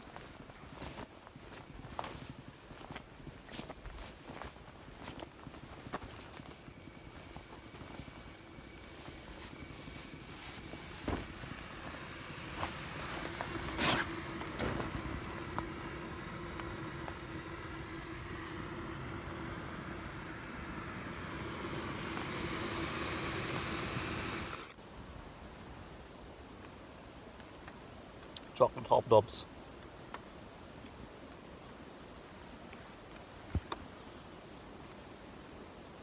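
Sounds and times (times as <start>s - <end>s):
camping stove hissing: 0.0s - 26.0s.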